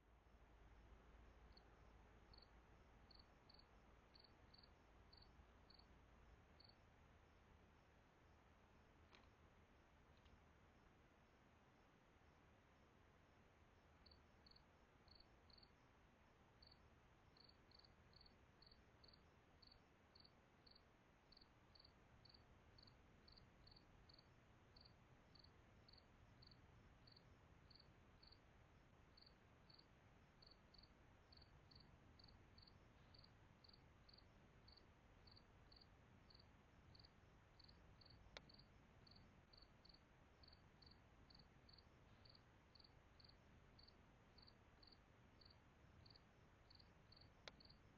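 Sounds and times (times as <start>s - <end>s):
cricket chirping: 1.5s - 1.7s, 2.3s - 5.9s, 6.6s - 6.8s, 14.0s - 15.8s, 16.6s - 16.8s, 17.4s - 28.4s, 29.1s - 47.8s.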